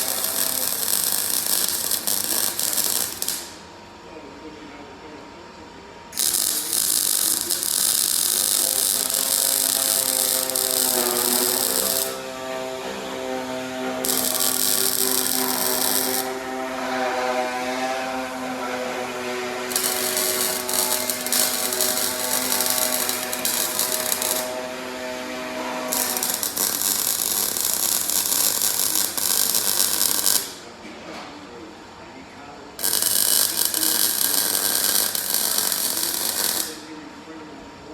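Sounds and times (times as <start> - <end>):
power tool motor hum: 0.0 - 3.6, 6.2 - 16.9, 18.3 - 30.6, 32.8 - 36.8
high-pitched grinding hiss: 0.0 - 3.7, 6.2 - 16.6, 19.1 - 30.6, 32.8 - 36.9.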